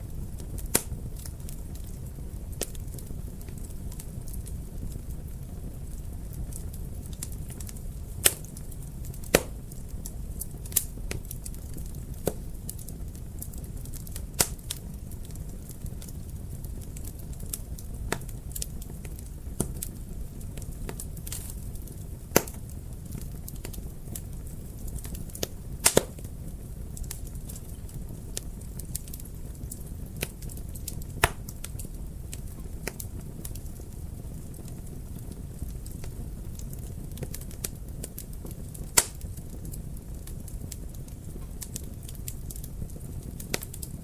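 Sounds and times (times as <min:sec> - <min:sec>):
fire crackles and pops: 0:00.0 - 0:44.0
low rumble of flames: 0:00.0 - 0:44.0.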